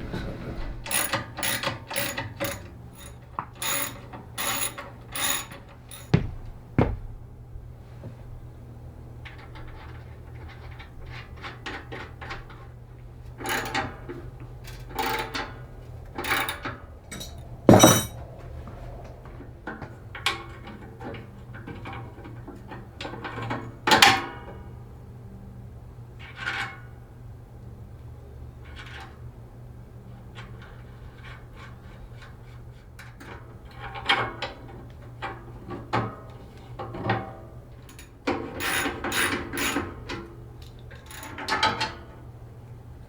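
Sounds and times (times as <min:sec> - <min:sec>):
metal tools clinking: 0:16.3 - 0:18.2.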